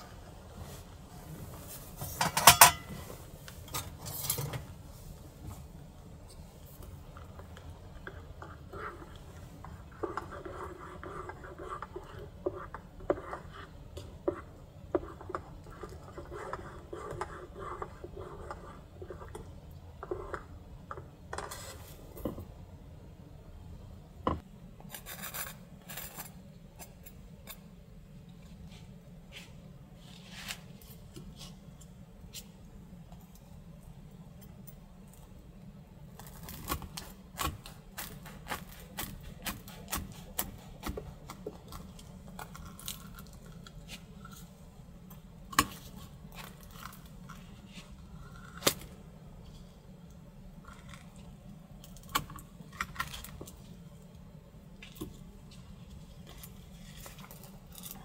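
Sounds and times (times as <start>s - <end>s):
dishes and utensils clinking: 2.1s - 3.0s.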